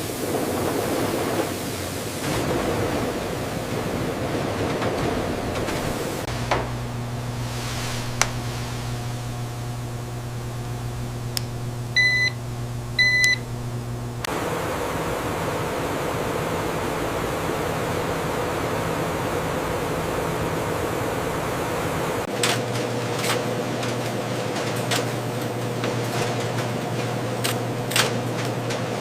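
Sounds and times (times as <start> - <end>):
hissy machine whir with tone: 0.0 - 22.3
factory machinery humming: 0.0 - 29.0
short electronic beeps: 12.0 - 12.4, 13.0 - 13.4.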